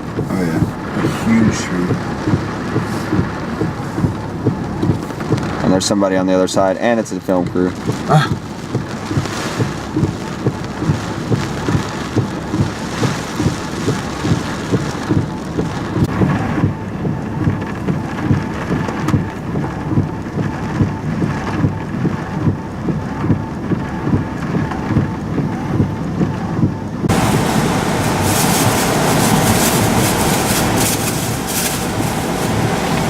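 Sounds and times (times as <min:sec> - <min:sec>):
heavy rain and wind drumming: 0:00.0 - 0:33.0
low rumble: 0:26.6 - 0:33.0.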